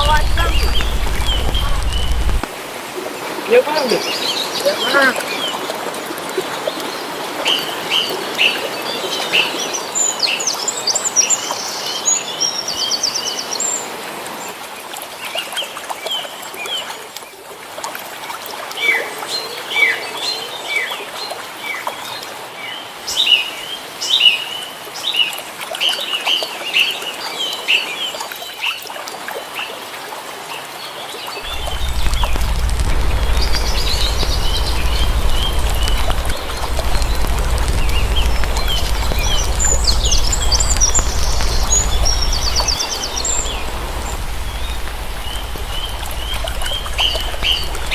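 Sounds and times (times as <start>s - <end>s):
low steady rumble: 0.0s - 2.5s, 31.4s - 47.9s
small birds chirping: 0.0s - 2.5s, 31.4s - 47.9s.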